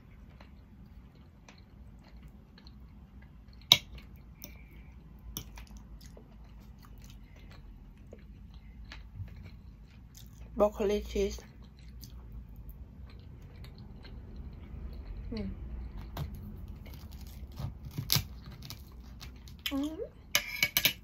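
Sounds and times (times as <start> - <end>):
wet chewing: 0.1 - 10.6, 11.3 - 19.8
cutlery clinking on ceramic plate: 20.3 - 21.0.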